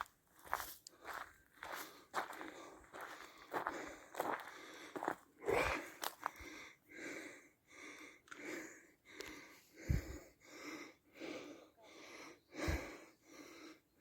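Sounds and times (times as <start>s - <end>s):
person breathing hard: 1.0s - 14.0s.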